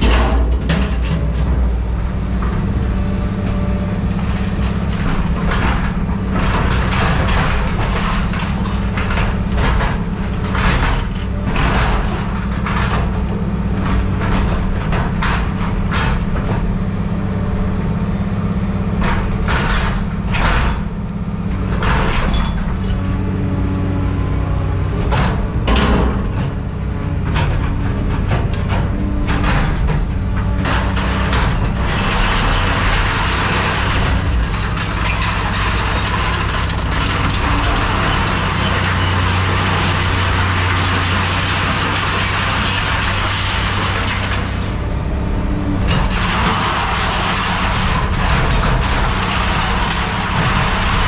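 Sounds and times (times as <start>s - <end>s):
scrap metal clanking: 2.4s - 16.7s, 24.9s - 51.0s.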